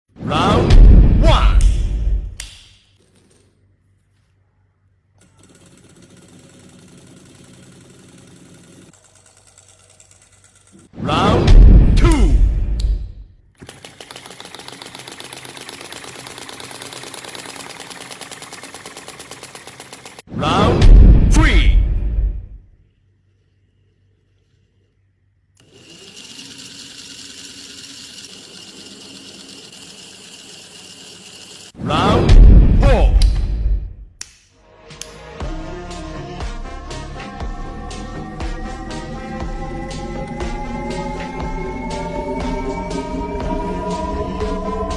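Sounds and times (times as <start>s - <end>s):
small model engine running: 5.2s - 11.0s, 13.6s - 20.3s, 25.6s - 31.8s, 37.9s - 44.9s.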